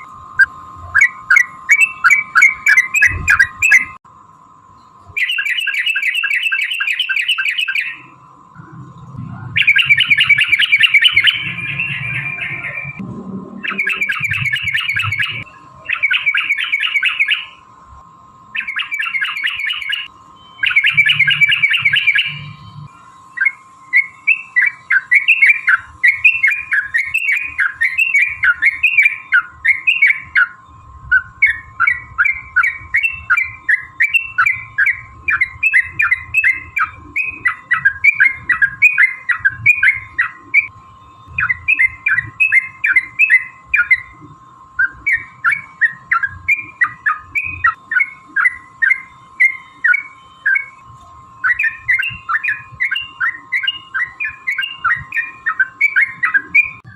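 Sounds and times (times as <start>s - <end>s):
bulbuls chattering calls: 8.7s - 13.0s, 13.6s - 17.5s.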